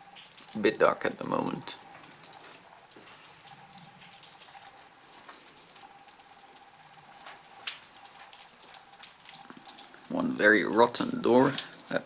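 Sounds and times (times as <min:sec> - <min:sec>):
rain pattering and dripping: 0:00.0 - 0:12.0.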